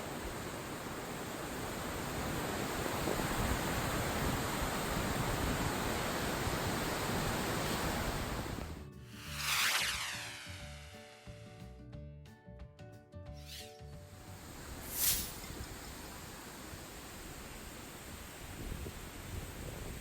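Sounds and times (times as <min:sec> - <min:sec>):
music: 0:08.8 - 0:09.2, 0:10.6 - 0:14.6.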